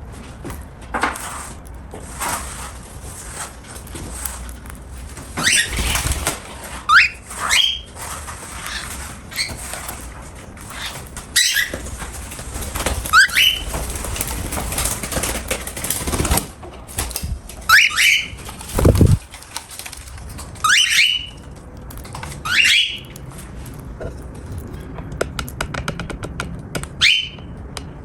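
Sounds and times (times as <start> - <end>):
cockatiel chirping: 5.4 - 6.1, 6.9 - 8.0, 10.7 - 11.8, 13.1 - 13.7, 17.7 - 19.2, 20.6 - 21.4, 22.4 - 23.2, 27.0 - 27.5
crackling clicks of eating: 18.4 - 28.0.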